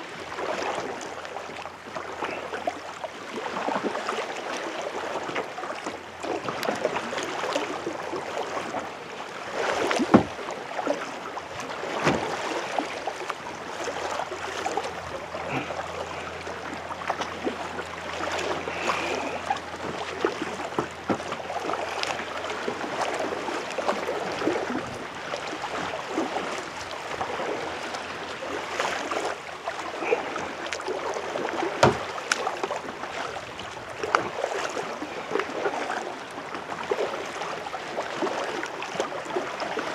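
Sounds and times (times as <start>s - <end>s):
paddle stroking through water: 0.0s - 39.9s
water dripping off paddle: 14.6s - 24.7s, 28.7s - 33.3s.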